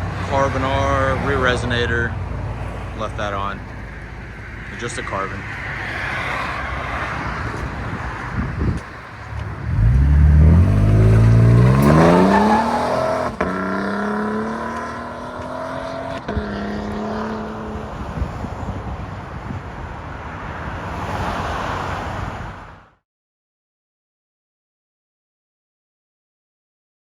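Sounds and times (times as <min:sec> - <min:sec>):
truck engine accelerating: 0:00.0 - 0:17.8.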